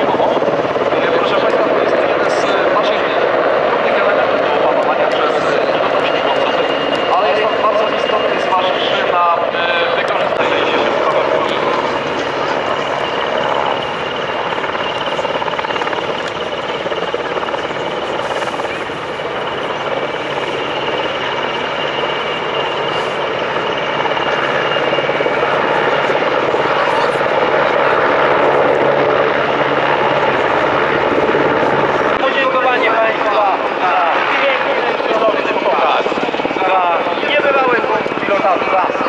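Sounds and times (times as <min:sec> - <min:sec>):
jet engine rush with whine: 0:00.0 - 0:39.0.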